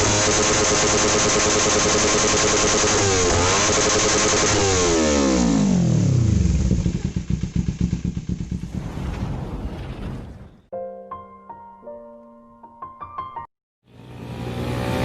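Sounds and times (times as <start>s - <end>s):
motorcycle engine revving: 0.0s - 8.7s, 13.9s - 15.0s.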